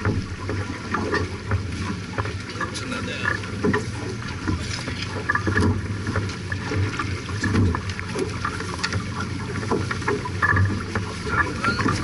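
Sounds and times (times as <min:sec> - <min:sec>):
knocks and splashes: 0:00.0 - 0:12.0
water rushing along hull: 0:00.0 - 0:12.0.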